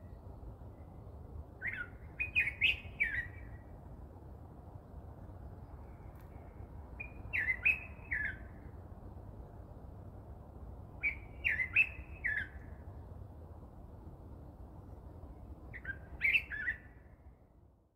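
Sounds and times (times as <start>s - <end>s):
bird chirping: 1.6s - 3.6s, 5.8s - 8.6s, 11.0s - 12.7s, 15.7s - 17.0s.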